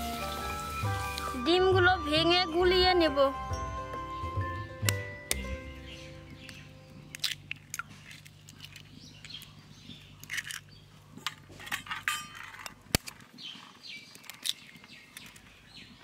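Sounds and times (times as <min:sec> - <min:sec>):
birds chirping: 0:00.2 - 0:11.6, 0:13.1 - 0:16.0.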